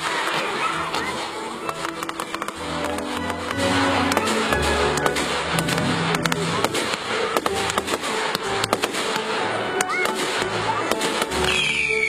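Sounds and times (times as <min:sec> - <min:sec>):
firework shells bursting and crackling: 0:00.0 - 0:12.0
music: 0:00.0 - 0:12.0
rising firework whistles: 0:11.4 - 0:12.0.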